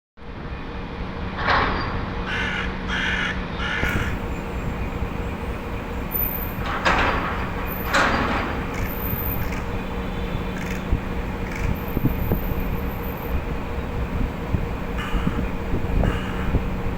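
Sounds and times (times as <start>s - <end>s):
crow cawing: 2.3s - 4.2s, 15.0s - 15.4s, 16.0s - 16.6s.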